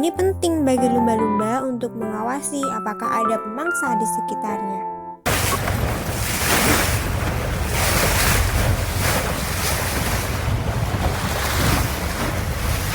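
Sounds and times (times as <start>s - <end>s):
sea water rushing: 5.3s - 12.9s
wind buffeting microphone: 5.3s - 12.9s.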